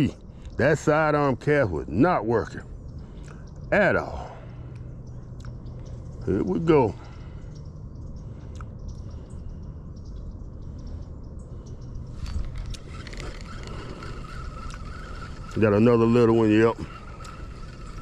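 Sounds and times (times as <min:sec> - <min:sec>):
wind: 0:00.0 - 0:18.0
light clicks: 0:07.1 - 0:15.8, 0:16.8 - 0:18.0
water around boat: 0:12.1 - 0:18.0.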